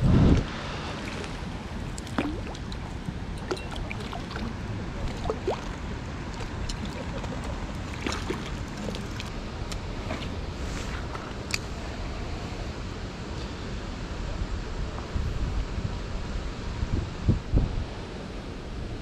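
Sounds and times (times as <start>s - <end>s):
steady low rumble: 0.0s - 19.0s
rain dripping and plinking: 1.2s - 9.8s.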